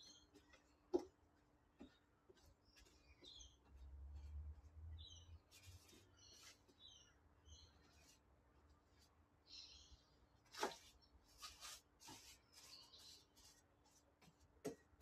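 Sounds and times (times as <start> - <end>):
faint bird chirps: 0.0 - 0.8, 1.8 - 8.2, 9.0 - 13.6.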